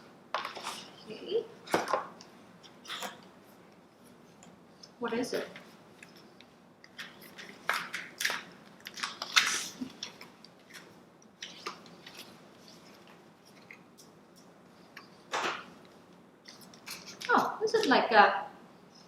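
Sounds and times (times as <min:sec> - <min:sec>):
packaging rustling and crinkling: 0:06.9 - 0:13.9.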